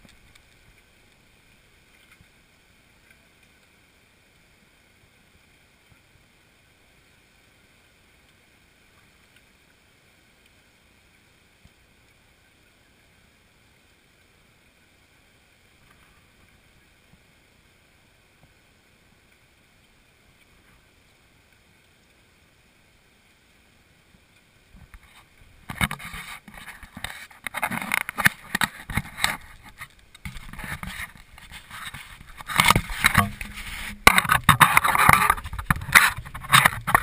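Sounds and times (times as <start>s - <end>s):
faint outdoor air hiss: 0.0s - 37.0s
faint ticks: 0.0s - 37.0s.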